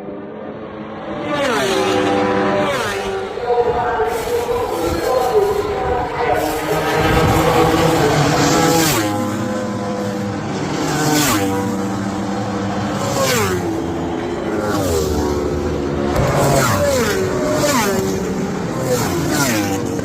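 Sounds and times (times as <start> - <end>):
racing motorcycle engines revving: 0.0 - 20.0.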